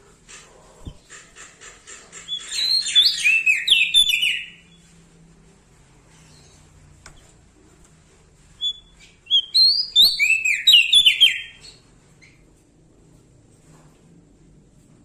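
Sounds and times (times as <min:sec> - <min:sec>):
songbird singing: 0:02.3 - 0:04.9, 0:08.6 - 0:12.4.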